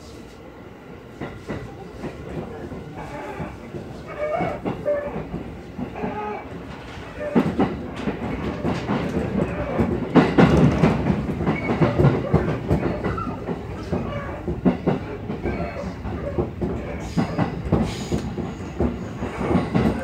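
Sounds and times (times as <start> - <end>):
train cabin rumble: 0.0 - 20.0
wheels clacking over rail joints: 1.2 - 20.0.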